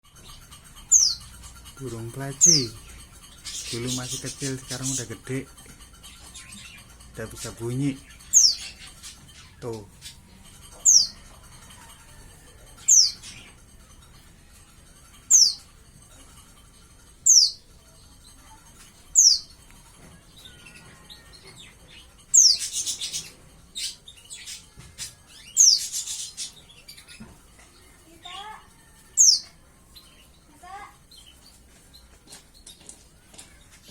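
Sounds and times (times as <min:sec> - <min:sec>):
bird rough chattering: 0:00.2 - 0:07.2, 0:21.9 - 0:27.1.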